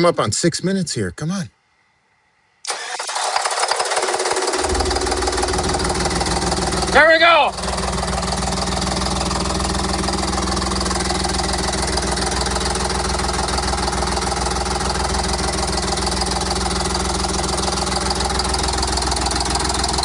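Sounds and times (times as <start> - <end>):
diesel engine running unevenly: 4.4 - 20.0.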